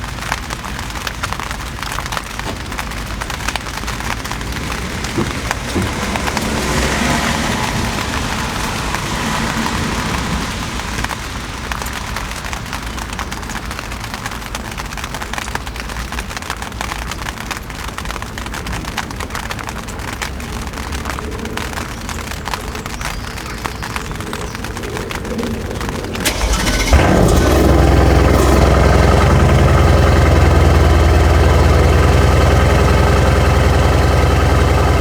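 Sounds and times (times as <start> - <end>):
car engine rumbling idle: 0.9 - 11.4, 25.0 - 35.0.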